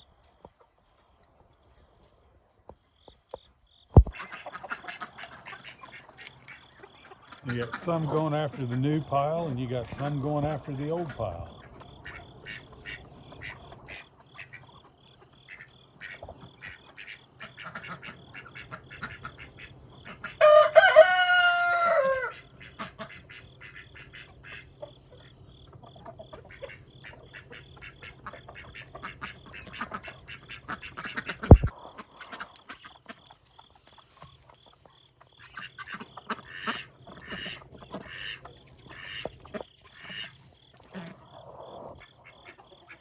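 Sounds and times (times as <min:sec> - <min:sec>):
chickens clucking and scratching: 0:00.0 - 0:43.0
rooster crowing: 0:20.4 - 0:22.4
low thump: 0:31.5 - 0:31.7.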